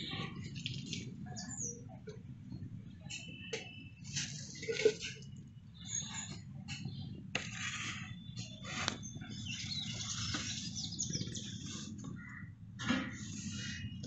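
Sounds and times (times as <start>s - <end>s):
small birds chirping: 5.8s - 7.2s, 7.9s - 12.6s.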